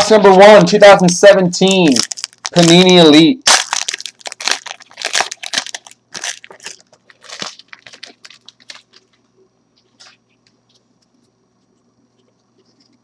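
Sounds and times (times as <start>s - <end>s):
wrapper crinkling and tearing: 1.6s - 9.2s.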